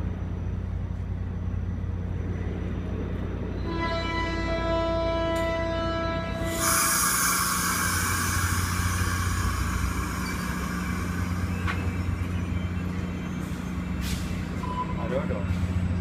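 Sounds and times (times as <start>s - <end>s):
train low hum: 0.0s - 16.0s
compressed air hissing: 6.4s - 12.5s.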